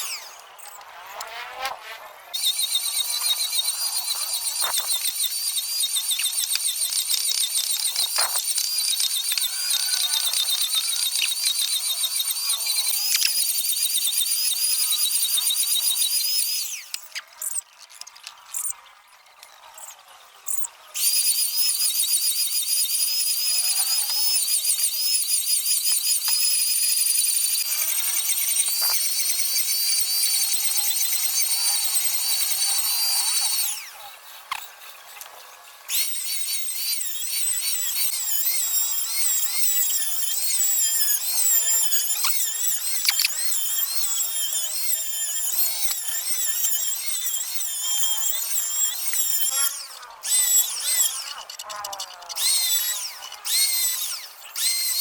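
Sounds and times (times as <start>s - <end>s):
power tool whining: 0.0s - 17.7s, 20.5s - 55.0s.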